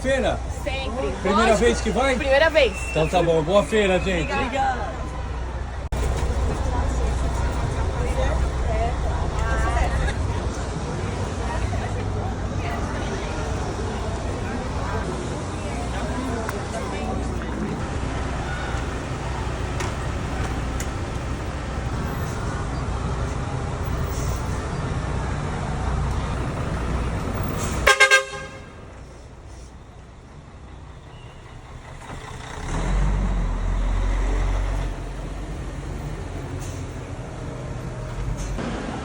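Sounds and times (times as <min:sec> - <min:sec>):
vehicle running noise: 0:00.0 - 0:39.0
horn toots: 0:27.7 - 0:28.8.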